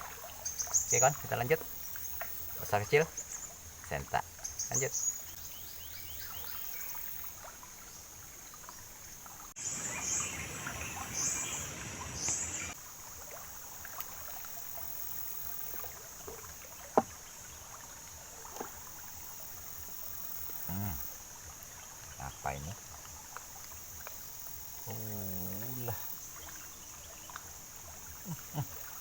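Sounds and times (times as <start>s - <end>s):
insects droning: 0.0s - 29.0s
water trickling: 0.0s - 29.0s
rushing noise with chirps: 9.5s - 13.1s.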